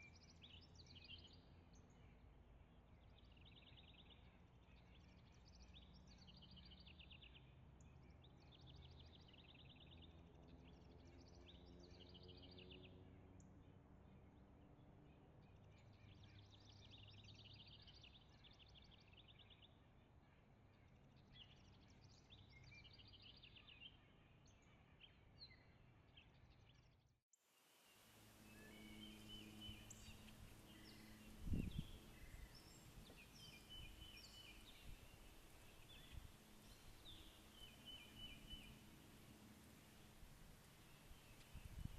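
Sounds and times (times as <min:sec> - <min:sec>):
faint songbird trills: 0:27.8 - 0:41.9
low steady hum: 0:27.8 - 0:41.9
birds chirping: 0:27.9 - 0:41.9.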